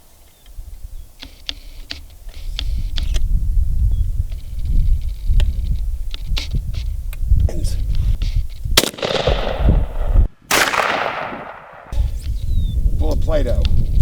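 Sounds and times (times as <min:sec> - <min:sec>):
loud sharp bangs: 0:08.8 - 0:12.0.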